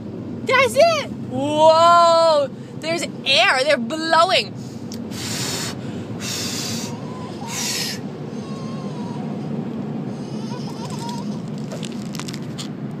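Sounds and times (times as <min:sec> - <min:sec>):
air dryers blowing: 0:04.5 - 0:11.5
loud hissing blasts: 0:04.6 - 0:08.2
dog whimpering: 0:06.8 - 0:09.3, 0:10.3 - 0:11.4.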